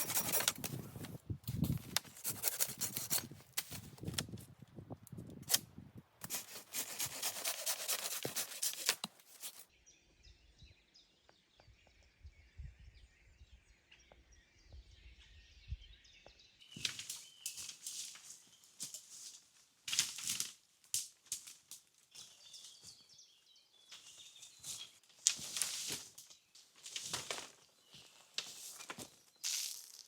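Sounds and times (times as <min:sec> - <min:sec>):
close rapid crackling and rustling: 0:06.2 - 0:09.7
faint birdsong: 0:07.6 - 0:19.8, 0:21.8 - 0:29.5.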